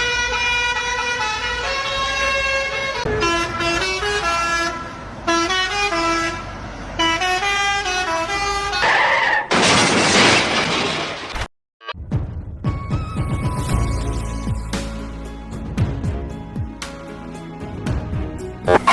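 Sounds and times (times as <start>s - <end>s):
musical horn playing a tune: 18.7s - 18.9s.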